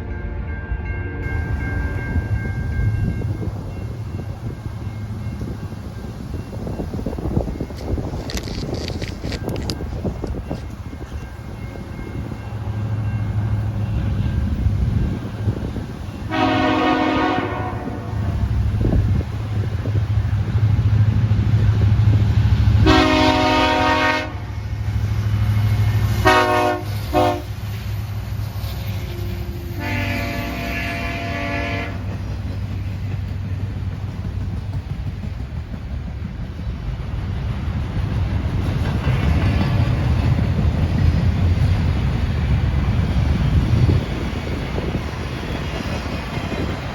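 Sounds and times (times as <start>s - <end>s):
rumble of passing train: 0.0s - 46.9s
locomotive air horn blasts: 16.2s - 18.4s, 22.8s - 24.6s, 25.8s - 27.6s, 28.7s - 32.1s.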